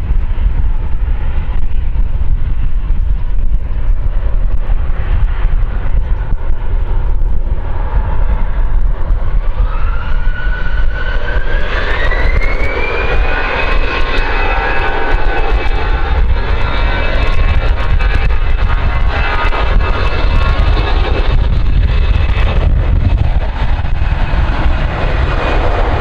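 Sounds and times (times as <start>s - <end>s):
jet engine whine rising: 0.0s - 26.0s
jet engines rumbling: 0.0s - 26.0s.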